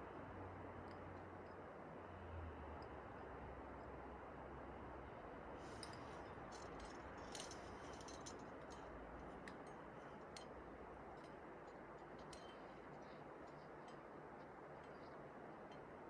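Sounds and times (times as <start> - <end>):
light clicks and ticks: 5.7 - 16.0.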